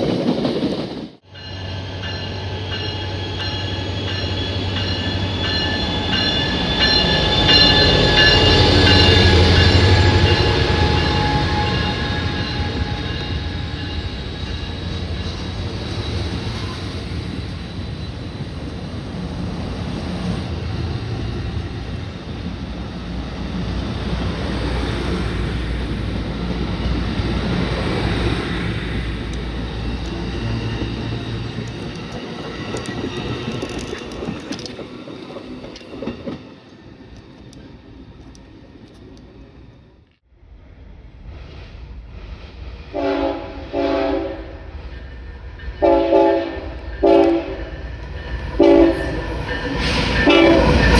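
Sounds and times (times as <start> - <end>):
train wheels rumbling on rails: 0.0 - 50.9
faint high squealing: 1.4 - 18.4.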